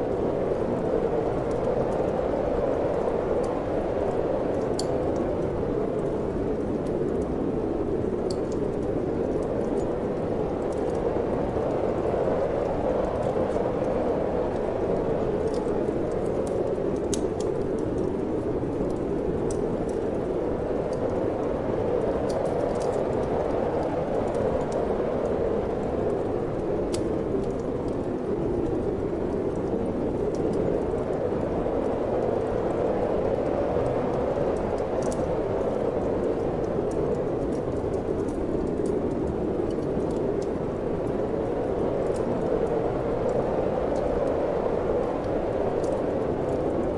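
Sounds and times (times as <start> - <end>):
wood fire crackling and popping: 0.0 - 46.8
wind blowing: 17.7 - 46.9.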